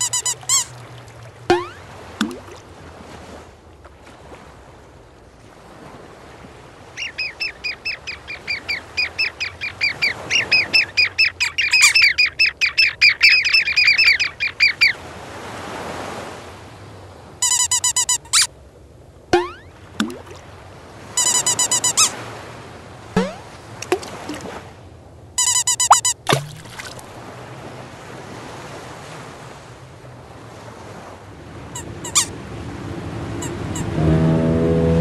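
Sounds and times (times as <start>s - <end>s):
short pitched tones: 1.5s - 2.5s, 19.3s - 20.2s, 23.2s - 24.4s, 25.4s - 26.7s.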